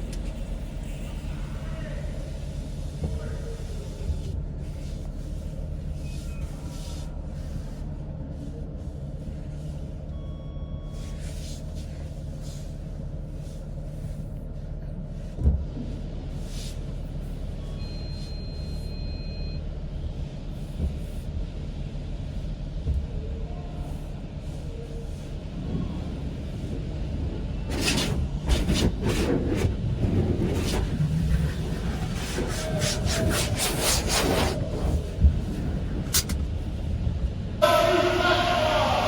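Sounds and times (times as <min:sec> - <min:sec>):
short beeps: 0:17.7 - 0:19.6.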